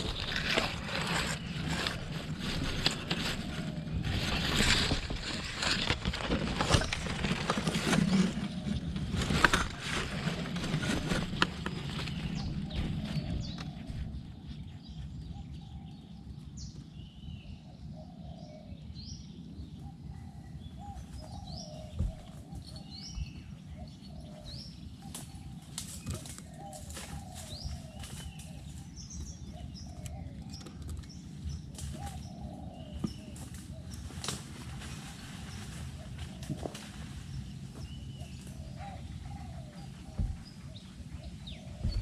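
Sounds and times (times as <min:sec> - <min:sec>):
doves cooing: 0:00.0 - 0:15.9, 0:19.7 - 0:42.0
low rumbling background: 0:00.0 - 0:25.8
small birds chirping: 0:00.0 - 0:42.0.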